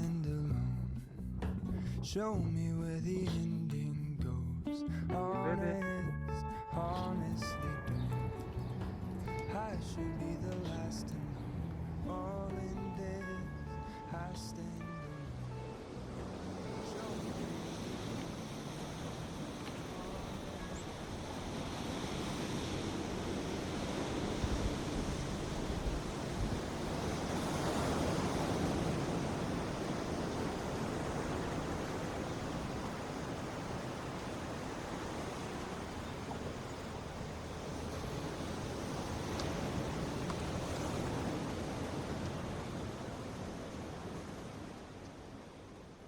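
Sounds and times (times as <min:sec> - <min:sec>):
ocean surf breaking: 0:05.1 - 0:46.0
wind buffeting microphone: 0:15.8 - 0:45.0.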